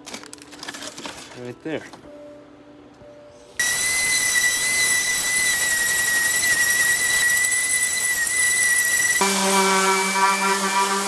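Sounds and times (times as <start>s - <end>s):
electric sander whining: 3.6s - 11.0s.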